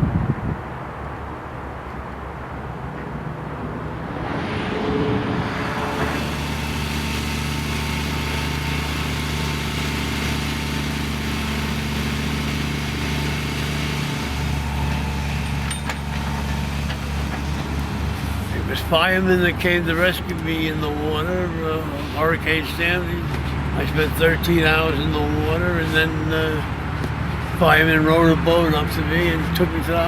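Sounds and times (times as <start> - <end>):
vehicle engine humming: 1.4 - 30.0.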